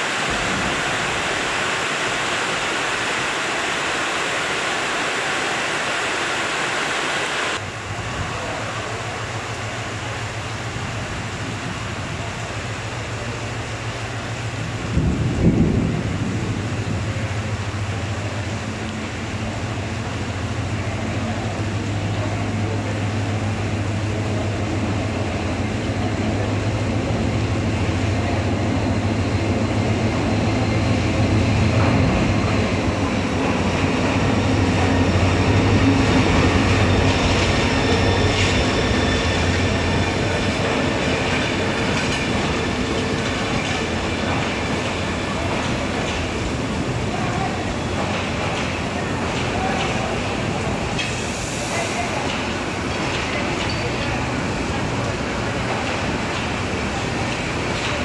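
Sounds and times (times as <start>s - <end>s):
diesel train engine and wheels: 0.0s - 58.0s
heavy rain hissing: 0.0s - 58.0s
train squealing: 33.4s - 46.3s, 47.2s - 54.7s.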